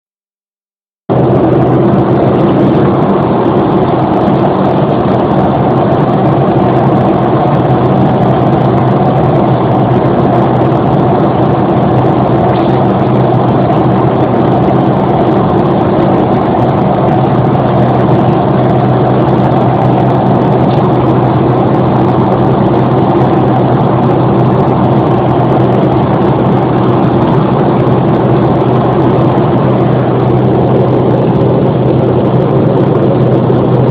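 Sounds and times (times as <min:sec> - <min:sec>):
airplane cabin engine drone: 0:01.1 - 0:33.9.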